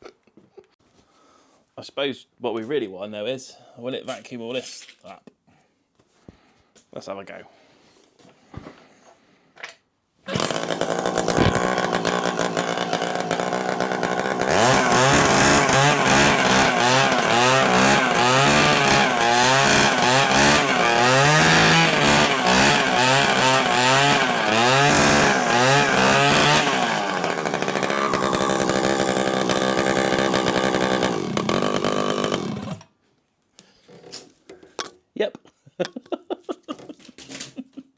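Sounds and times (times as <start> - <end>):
small two-stroke engine revving: 10.3 - 32.8.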